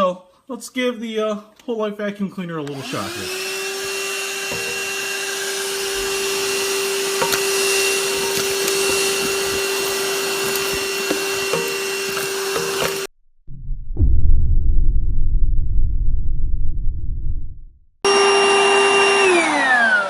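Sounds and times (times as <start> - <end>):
stick vacuum whine: 2.6 - 13.1, 18.1 - 20.0
wood chips rattling in vacuum: 4.5 - 13.1.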